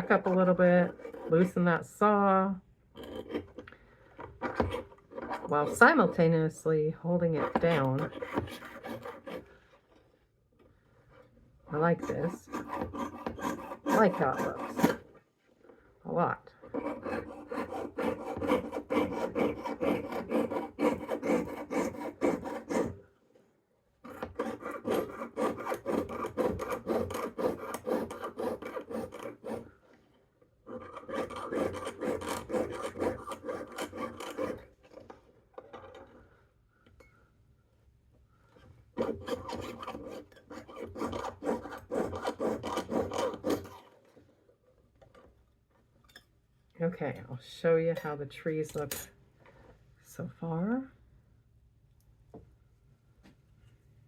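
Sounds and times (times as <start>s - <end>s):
saw cutting sheet metal: 11.8s - 15.0s, 16.8s - 23.0s, 30.8s - 34.6s.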